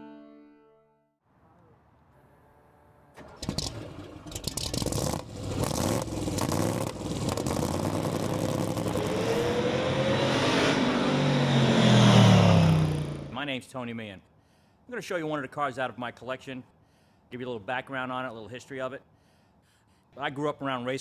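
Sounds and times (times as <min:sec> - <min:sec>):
car engine starting and revving: 0:03.2 - 0:13.4.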